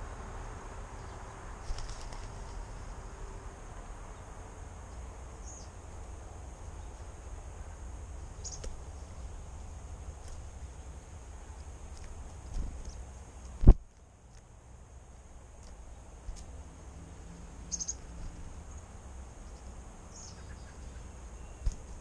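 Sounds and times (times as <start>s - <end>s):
steady low rumble and hiss: 0.0s - 22.0s
high bird chirps: 8.4s - 8.7s, 17.7s - 18.0s.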